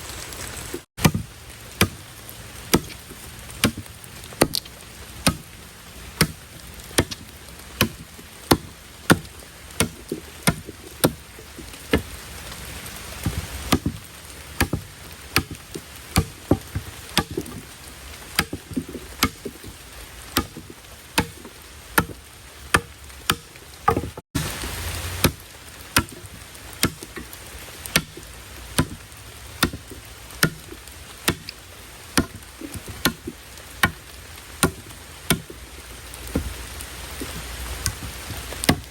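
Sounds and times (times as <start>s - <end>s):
heavy rain: 0.0s - 38.9s
blade chopping: 2.7s - 5.5s, 6.2s - 12.1s, 13.2s - 17.8s, 18.4s - 19.7s, 20.4s - 29.0s, 29.6s - 31.6s, 32.2s - 34.0s, 34.6s - 35.6s.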